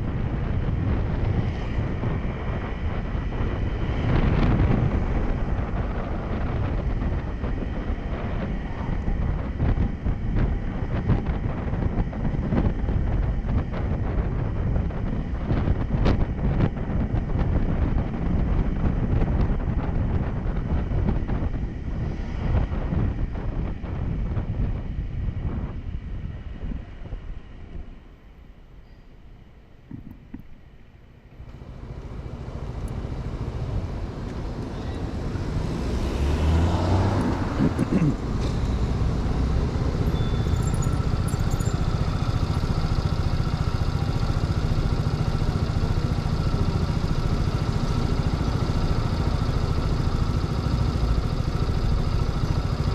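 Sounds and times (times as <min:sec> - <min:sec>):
road noise: 0:00.0 - 0:52.9
wind rushing over microphone: 0:00.0 - 0:52.9
motorcycle engine: 0:31.4 - 0:52.9.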